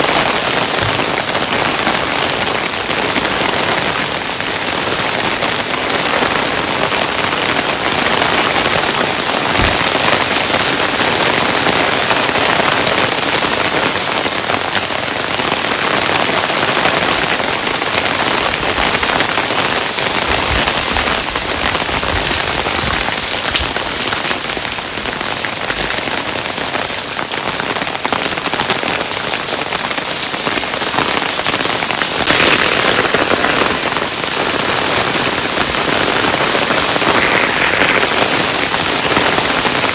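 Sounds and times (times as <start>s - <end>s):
hailstones pattering: 0.0s - 39.9s
heavier hailstone thud: 9.5s - 10.5s.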